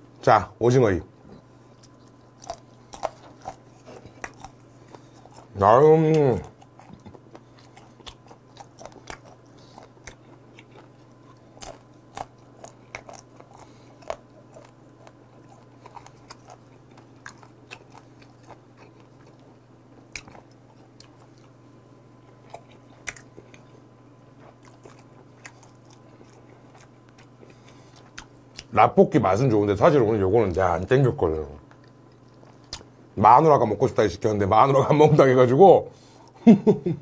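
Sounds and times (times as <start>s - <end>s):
crunchy chewing: 1.2s - 28.8s, 31.3s - 33.0s.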